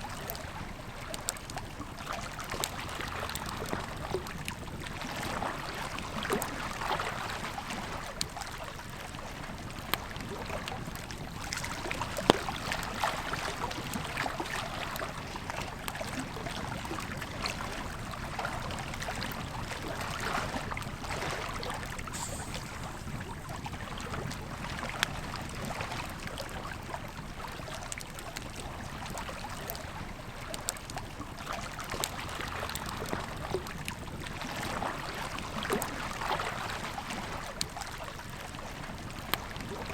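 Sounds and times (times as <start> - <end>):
river flowing: 11.4 - 25.0
campfire crackling and popping: 21.8 - 25.7.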